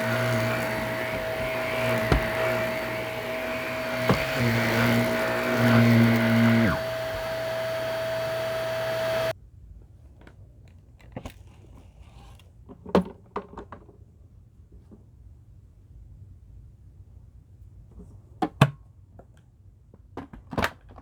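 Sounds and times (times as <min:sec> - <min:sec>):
vacuum cleaner running: 0:00.0 - 0:09.3.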